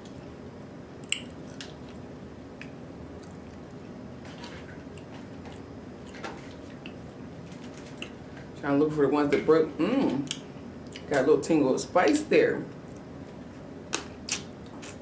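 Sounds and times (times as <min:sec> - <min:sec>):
low steady hum: 0:00.0 - 0:15.0
person chewing wetly: 0:01.0 - 0:08.2.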